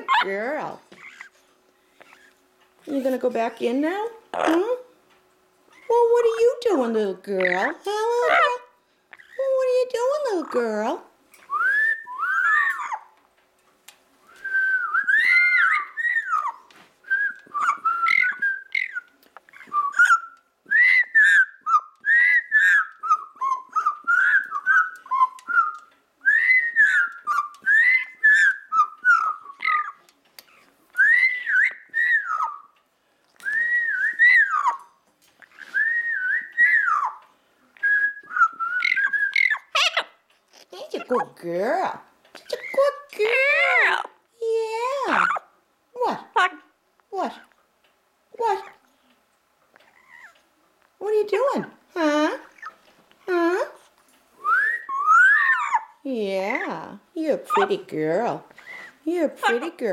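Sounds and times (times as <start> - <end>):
parrot whistling: 11.5 - 13.1, 14.3 - 32.8, 33.4 - 34.9, 35.5 - 37.2, 37.8 - 40.2, 42.6 - 44.1, 54.4 - 56.0.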